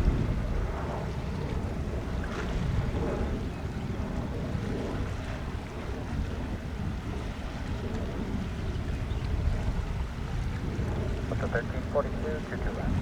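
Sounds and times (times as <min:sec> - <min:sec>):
wind buffeting microphone: 0:00.0 - 0:13.0
distant jet engines rumbling: 0:09.3 - 0:13.0.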